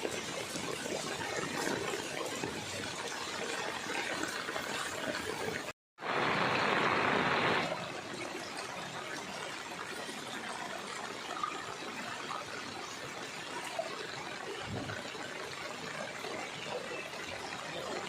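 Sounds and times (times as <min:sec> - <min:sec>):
floodwater trickling: 0:00.0 - 0:18.0.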